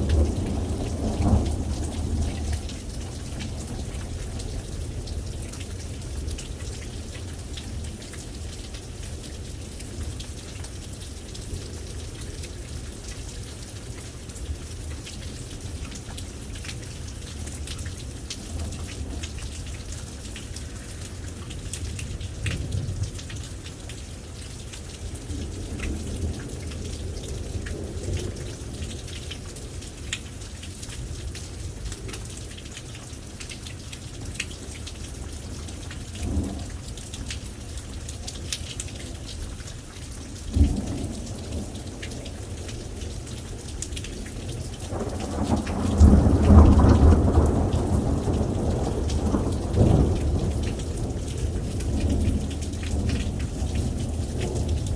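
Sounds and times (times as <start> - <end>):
thunder rumbling: 0.0 - 6.3, 40.5 - 54.9
rain pattering: 0.0 - 54.9
sharp thunderclap: 44.9 - 51.2.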